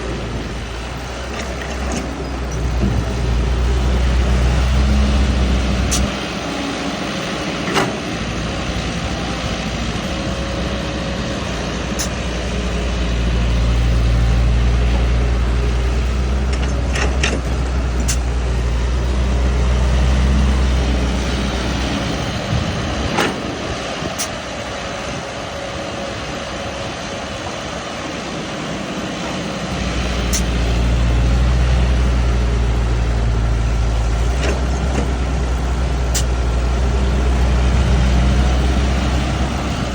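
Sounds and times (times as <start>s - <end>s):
heavy vehicle engine running: 0.0s - 39.9s.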